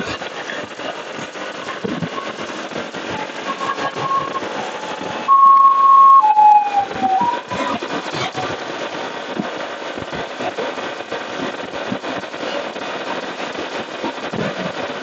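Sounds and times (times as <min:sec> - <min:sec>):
wind and road noise: 0:00.0 - 0:15.0
shrill tones: 0:03.2 - 0:07.8.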